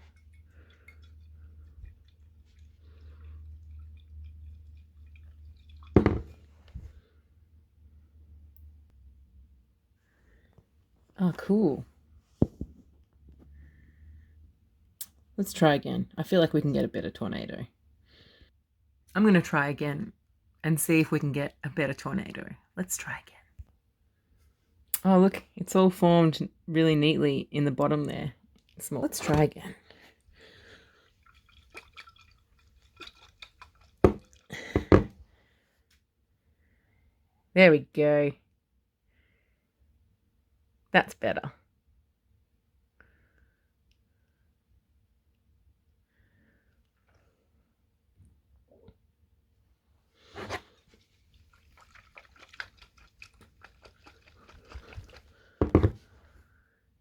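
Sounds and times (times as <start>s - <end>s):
water sloshing in glass bottle: 0.0s - 7.0s, 28.8s - 35.1s, 50.3s - 56.2s
glass bottle knocking: 6.0s - 6.4s, 34.0s - 35.1s.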